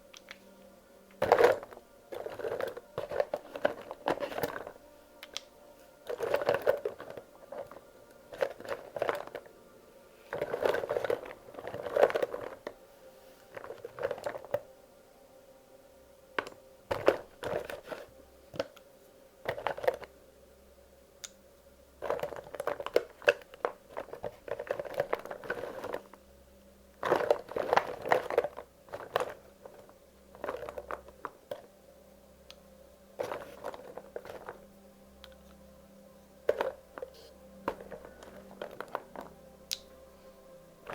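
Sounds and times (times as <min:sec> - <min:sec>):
crayons clicking and rattling: 0:01.1 - 0:09.5, 0:10.2 - 0:12.8, 0:13.4 - 0:14.7, 0:16.4 - 0:20.1, 0:22.0 - 0:26.2, 0:27.0 - 0:31.7, 0:33.2 - 0:35.6, 0:36.4 - 0:40.9.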